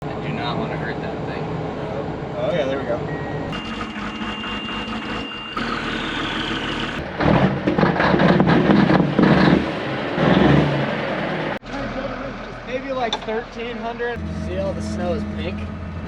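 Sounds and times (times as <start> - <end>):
snowcat engine surging: 3.0 - 7.6, 9.0 - 16.0.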